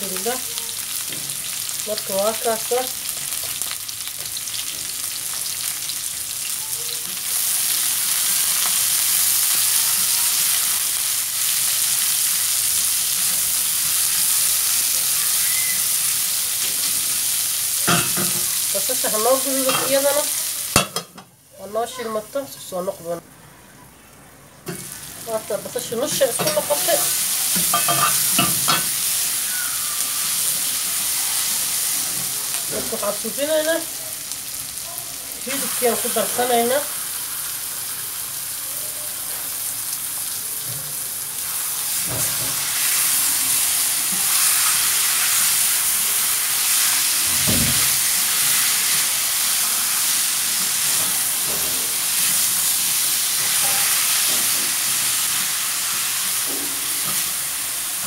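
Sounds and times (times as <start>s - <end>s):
onions and chicken sizzling: 0.0s - 58.0s.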